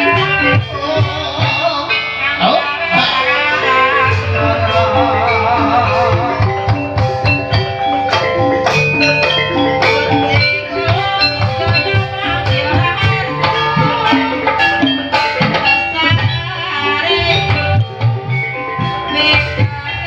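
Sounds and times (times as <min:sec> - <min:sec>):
person singing wavering voice: 0:00.0 - 0:20.0
pitched percussion repeated notes: 0:00.0 - 0:20.0
steady drum strokes: 0:02.9 - 0:14.6.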